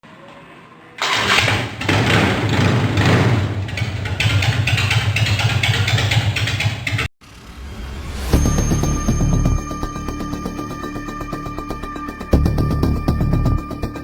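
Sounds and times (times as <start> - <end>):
motorcycle engine revving: 1.0 - 7.8.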